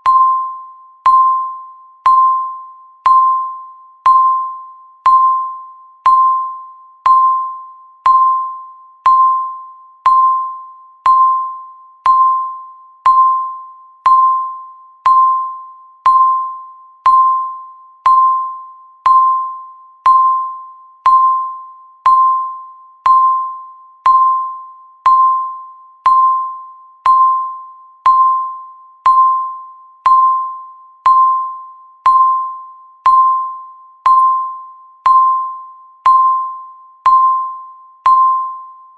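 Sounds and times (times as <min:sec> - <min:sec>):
electronic timer ticks: 0:12.0 - 0:13.4.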